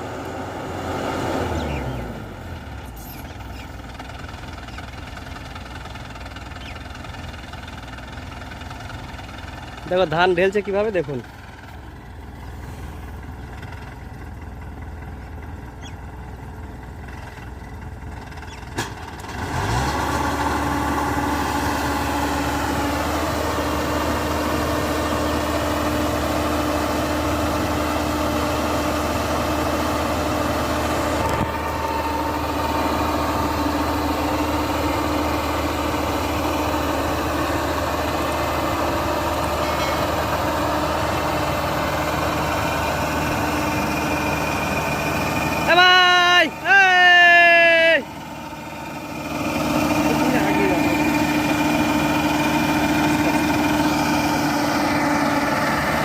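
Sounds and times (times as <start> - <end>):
combine harvester engine running: 0.0 - 56.0.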